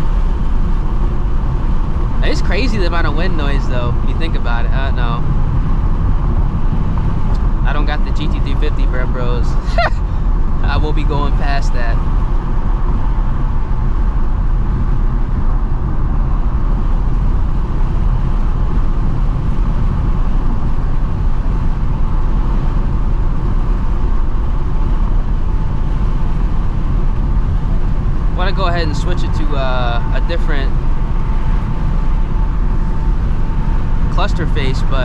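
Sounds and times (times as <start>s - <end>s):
car engine drone: 0.0s - 35.0s
road and wind noise: 0.0s - 35.0s.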